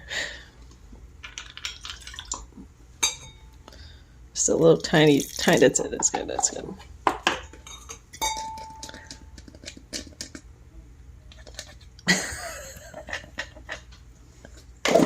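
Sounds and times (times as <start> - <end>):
ringing kitchenware clink: 3.0 - 3.5, 7.6 - 9.0
kitchenware clattering: 5.6 - 9.2.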